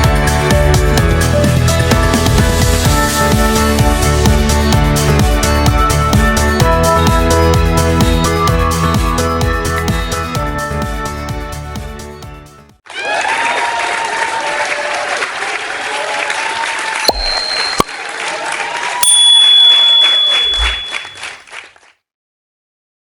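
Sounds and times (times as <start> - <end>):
crowd applauding and cheering: 12.9 - 21.8
bell-like ding: 17.1 - 18.0, 19.0 - 21.4.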